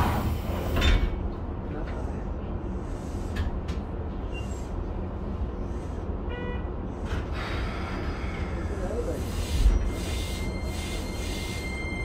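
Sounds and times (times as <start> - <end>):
train car rumbling on track: 0.0 - 12.0
hiss: 7.3 - 11.6.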